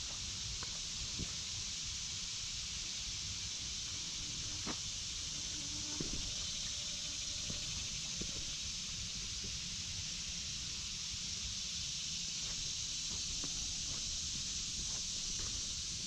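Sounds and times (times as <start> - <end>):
steady high hiss: 0.0 - 16.0
footstep crunches on trail: 12.4 - 16.0.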